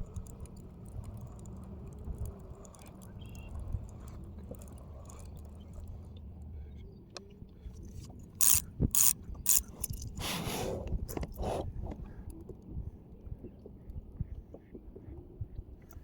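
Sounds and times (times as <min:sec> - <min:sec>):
sharp mechanical clicks: 0:00.0 - 0:06.1, 0:07.8 - 0:10.2
rasping ratchet: 0:08.4 - 0:10.2.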